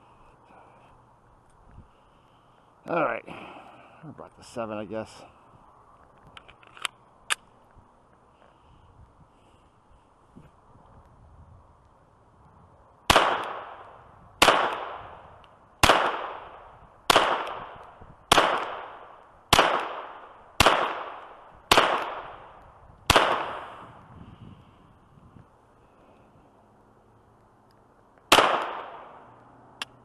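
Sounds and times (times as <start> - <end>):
pistol shots echoing: 13.1 - 13.8, 14.4 - 15.1, 15.8 - 22.5, 23.1 - 23.7, 28.3 - 29.2.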